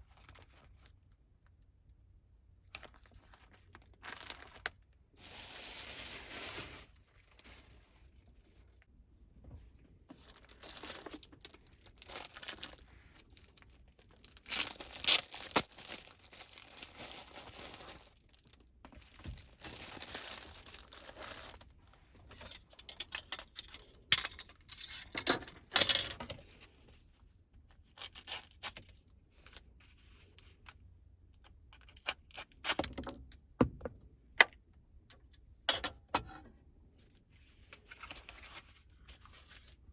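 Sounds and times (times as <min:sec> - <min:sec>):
plastic wrap tearing and crinkling: 0:02.8 - 0:07.9, 0:10.1 - 0:22.0, 0:27.8 - 0:29.6.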